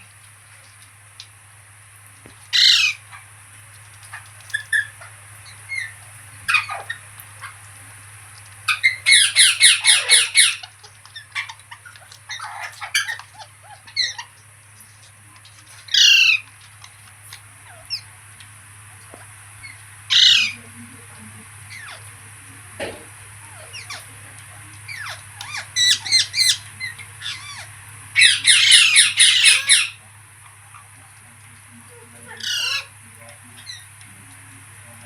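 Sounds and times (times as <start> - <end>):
parrot screeching: 2.5 - 3.2, 4.1 - 7.6, 8.7 - 14.4, 15.6 - 17.0, 17.6 - 18.1, 19.6 - 20.6, 21.7 - 22.1, 23.4 - 24.1, 24.9 - 30.0, 32.3 - 33.0, 33.6 - 33.9
parrot chirps: 2.5 - 3.3, 4.0 - 7.6, 8.7 - 14.5, 15.6 - 18.2, 19.6 - 20.6, 21.6 - 22.1, 23.4 - 24.2, 24.8 - 30.9, 32.3 - 33.0, 33.6 - 34.0.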